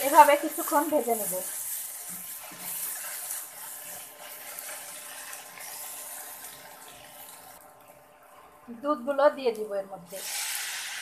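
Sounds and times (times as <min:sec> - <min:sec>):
paste sizzling in oil: 0:00.0 - 0:07.6, 0:10.1 - 0:11.0.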